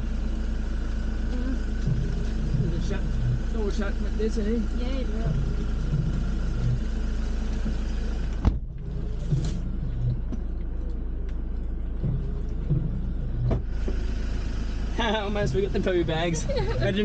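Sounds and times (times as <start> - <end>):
vehicle engine idling: 0.0 - 17.0
car door slamming: 8.4 - 8.7.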